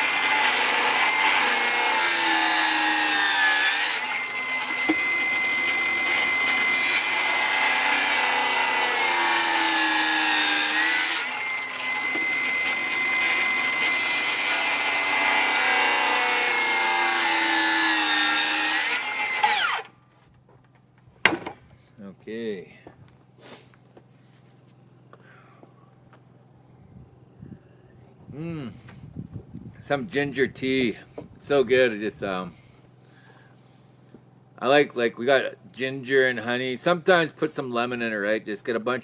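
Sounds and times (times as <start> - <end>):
power tool cutting wood: 0.0 - 19.9.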